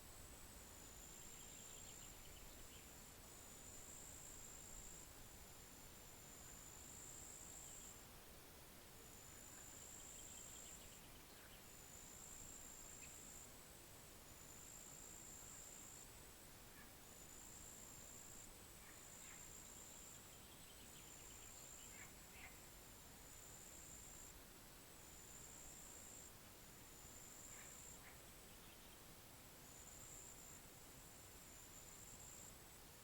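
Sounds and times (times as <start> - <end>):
soft bird chirps: 1.1 - 3.0, 18.8 - 22.7, 27.5 - 29.1.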